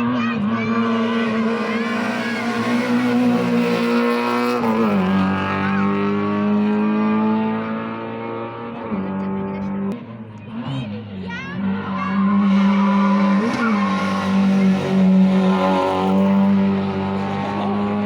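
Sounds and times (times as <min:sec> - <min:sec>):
rally car engine at high revs: 0:00.0 - 0:18.0.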